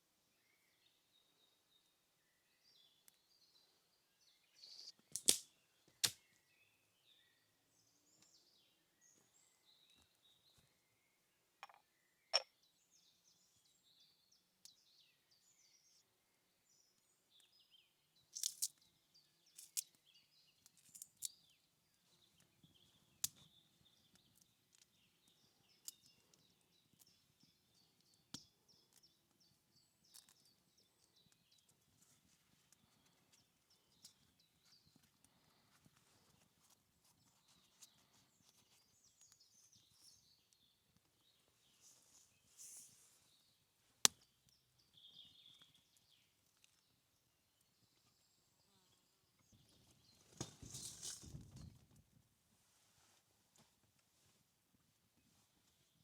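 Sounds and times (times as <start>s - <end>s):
faint birdsong chirps: 0.0s - 56.0s
sharp cracks: 5.1s - 6.2s.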